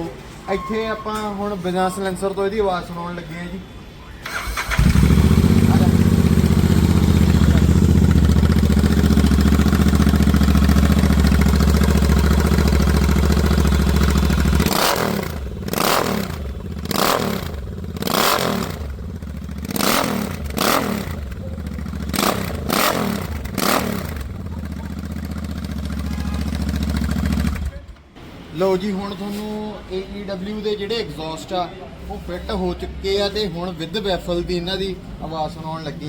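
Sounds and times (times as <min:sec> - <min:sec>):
motorcycle engine throttle blips: 0:04.2 - 0:28.0
motorcycle engine idling: 0:04.7 - 0:28.0.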